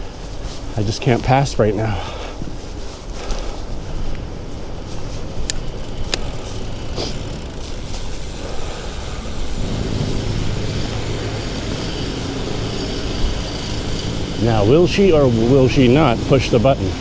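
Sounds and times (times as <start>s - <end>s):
road noise: 0.0s - 17.0s
vehicle engine hum: 3.8s - 17.0s.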